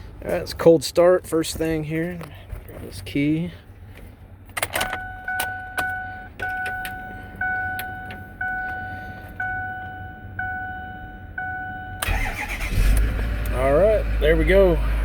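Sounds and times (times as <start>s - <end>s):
truck warning chime dinging: 4.6s - 12.7s
engine starter cranking: 12.0s - 13.6s.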